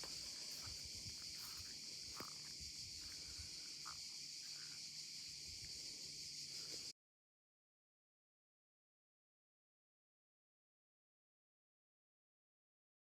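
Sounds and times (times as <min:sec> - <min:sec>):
insects chirring: 0:00.0 - 0:06.9.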